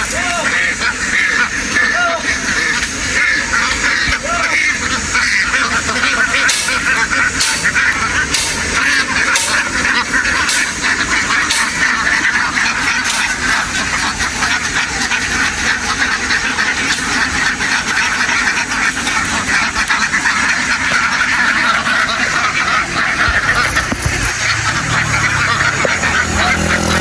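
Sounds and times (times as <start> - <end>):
flock of ducks quacking: 0.0 - 27.0.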